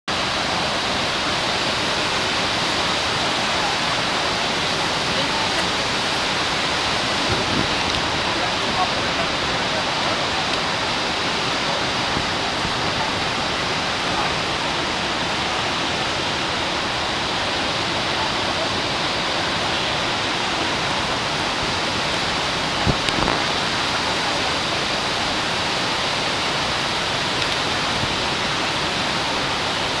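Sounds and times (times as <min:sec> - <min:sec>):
waterfall roaring: 0:00.1 - 0:30.0.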